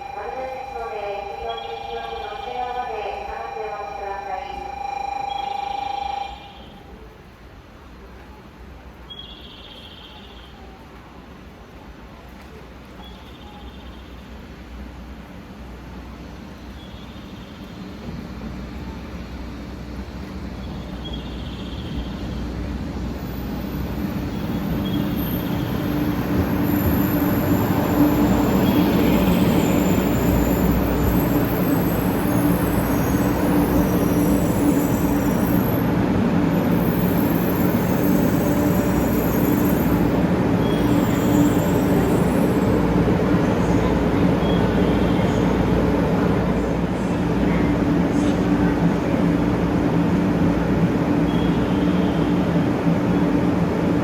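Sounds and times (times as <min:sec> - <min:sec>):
train rumble: 0:00.0 - 0:09.1, 0:14.2 - 0:54.0
high-pitched brake squeal: 0:23.3 - 0:35.9, 0:36.6 - 0:42.8.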